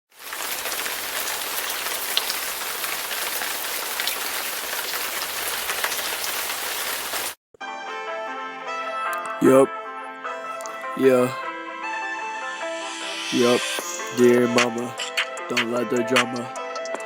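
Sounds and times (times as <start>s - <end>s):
steady rain falling: 0.1s - 7.4s.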